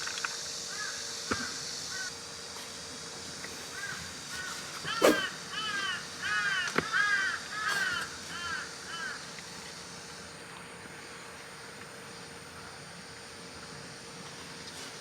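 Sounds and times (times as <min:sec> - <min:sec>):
crow cawing: 0:00.7 - 0:02.1, 0:03.7 - 0:09.2.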